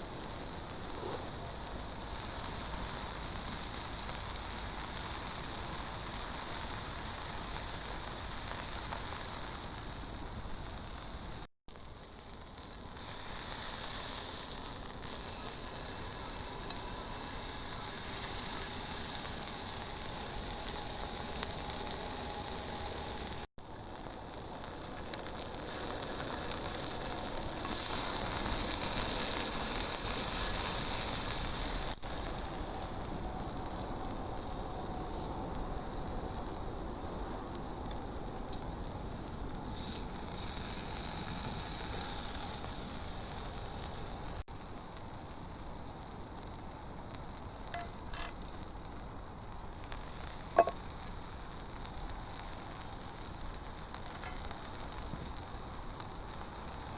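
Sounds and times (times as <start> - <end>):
steak sizzling on a griddle: 0.0 - 56.9
faint metallic clinks: 47.7 - 48.6, 50.6 - 50.8, 54.2 - 54.5.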